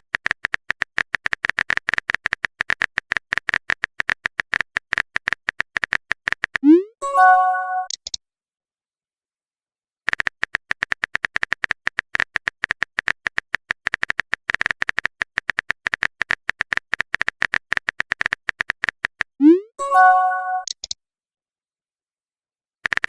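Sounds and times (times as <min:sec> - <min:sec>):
keyboard typing clicks: 0:00.1 - 0:08.2, 0:20.0 - 0:21.0.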